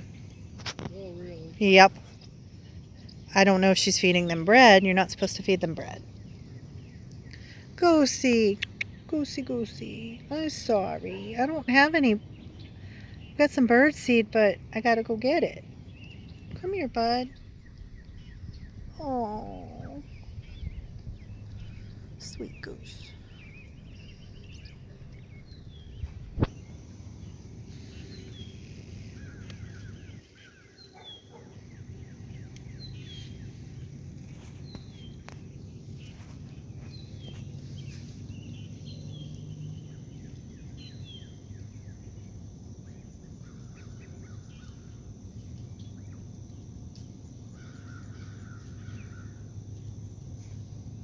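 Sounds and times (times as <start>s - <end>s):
birds calling: 0.0s - 46.7s, 47.3s - 50.8s
buzzy bird calls: 14.8s - 39.9s.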